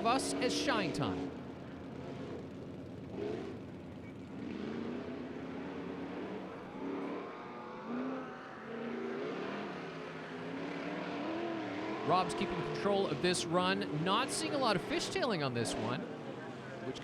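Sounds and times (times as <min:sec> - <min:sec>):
truck engine revving hard: 0:03.1 - 0:03.7, 0:04.3 - 0:16.1.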